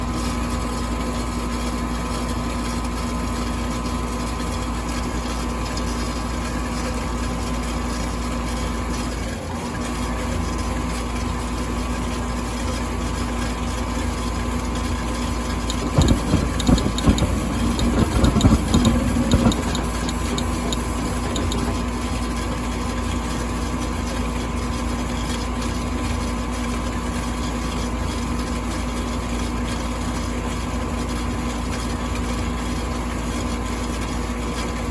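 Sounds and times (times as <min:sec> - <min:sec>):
furnace humming: 0:15.2 - 0:22.8
irregular clicking and rattling: 0:15.5 - 0:22.3.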